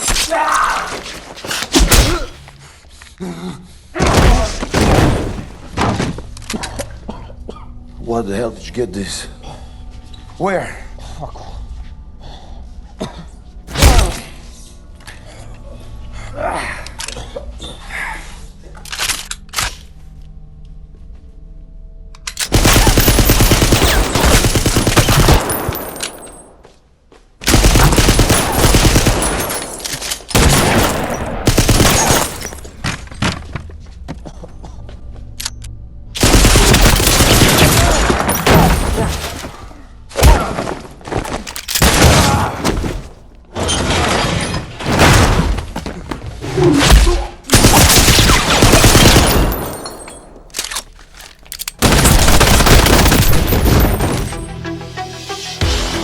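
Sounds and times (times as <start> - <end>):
automatic gunfire bursts: 22.4 - 25.9, 27.5 - 29.6, 30.4 - 32.4.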